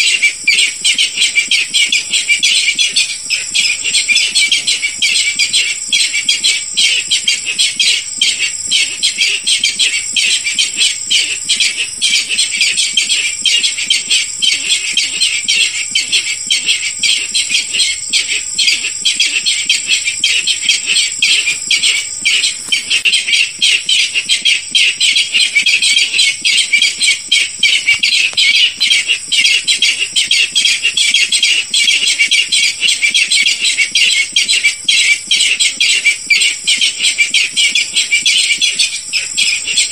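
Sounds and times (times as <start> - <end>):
bird calling harsh rapid notes: 0.0 - 39.9.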